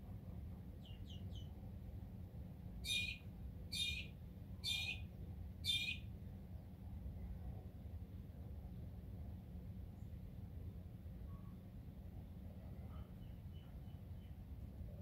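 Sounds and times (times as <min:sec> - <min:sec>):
bird chirping: 0:00.8 - 0:01.6, 0:02.8 - 0:06.0, 0:13.0 - 0:14.4
harsh high bird calls: 0:02.8 - 0:05.0, 0:05.6 - 0:06.0.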